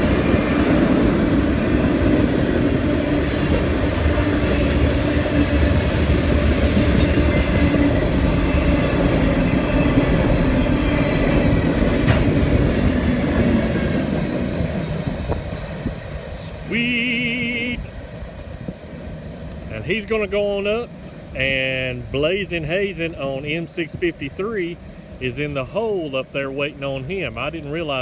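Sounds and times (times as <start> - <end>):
freight train wheels clattering on rails: 0.0 - 16.3.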